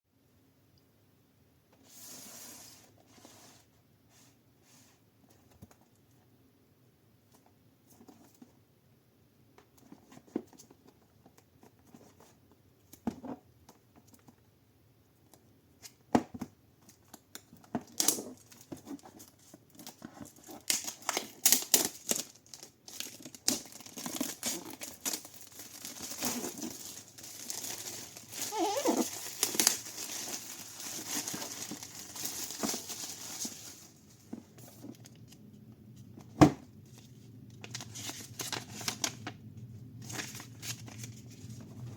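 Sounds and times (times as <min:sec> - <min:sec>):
packaging tearing and crinkling: 0:17.8 - 0:33.9, 0:37.6 - 0:39.3.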